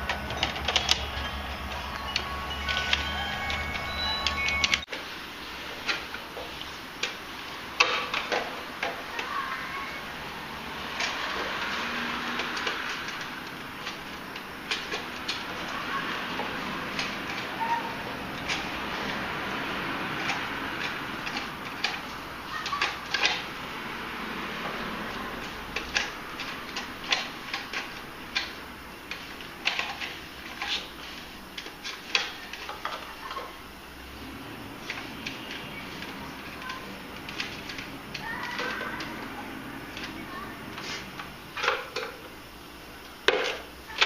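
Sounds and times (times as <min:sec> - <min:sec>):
sharp clicks and clacks: 0:00.0 - 0:04.9.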